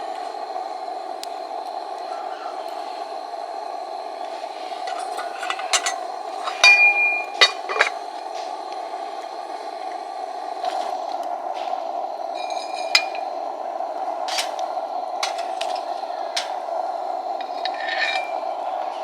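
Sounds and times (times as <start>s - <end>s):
tableware clinking: 4.9s - 8.0s, 12.4s - 13.3s, 17.4s - 18.5s.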